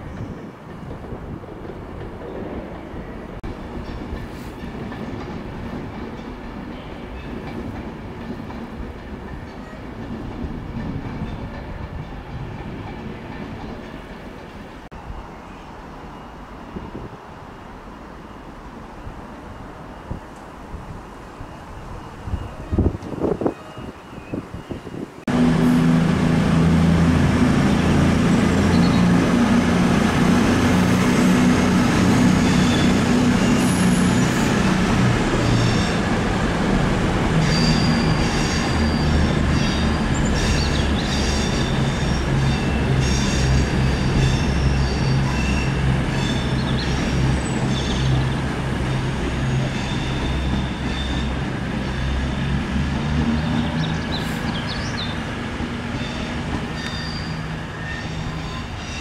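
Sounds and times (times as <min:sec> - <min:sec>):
locomotive low drone: 0:25.2 - 0:59.0
wheels squealing on rails: 0:27.4 - 0:59.0.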